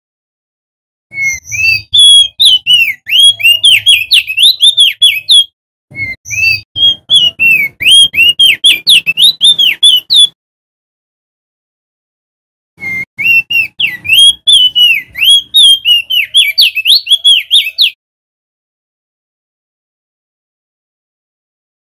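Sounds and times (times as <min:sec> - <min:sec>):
bird singing whistled notes: 0:01.1 - 0:10.4, 0:12.8 - 0:18.0.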